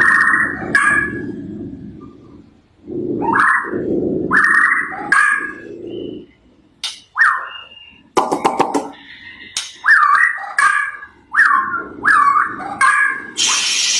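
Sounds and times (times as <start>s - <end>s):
starling whistling: 7.1s - 8.2s.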